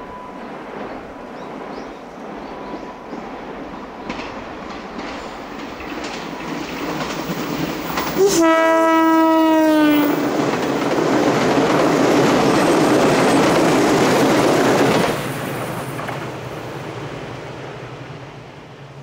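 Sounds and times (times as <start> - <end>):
train wheels rumbling on rails: 0.0 - 19.0
train horn blast: 8.1 - 10.2.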